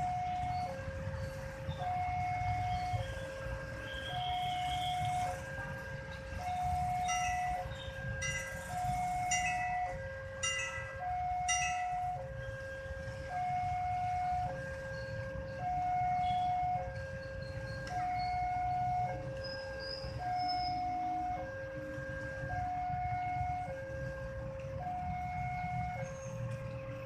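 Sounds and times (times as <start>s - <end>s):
level crossing two-tone alarm: 6.4s - 21.6s.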